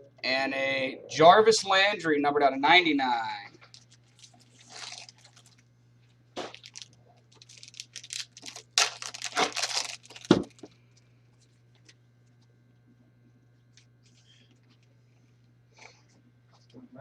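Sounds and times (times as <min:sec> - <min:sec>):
wrapper tearing and crinkling: 0:03.7 - 0:05.6, 0:06.4 - 0:10.7.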